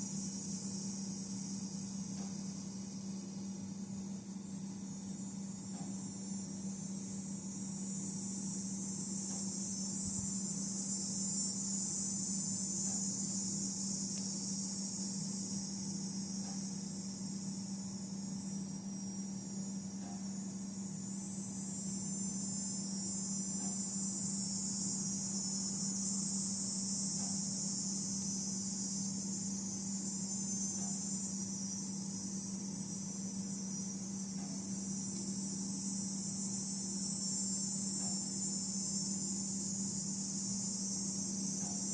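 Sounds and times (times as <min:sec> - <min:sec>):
high-pitched insect chorus: 0:00.0 - 0:41.9
low steady hum: 0:00.0 - 0:41.9.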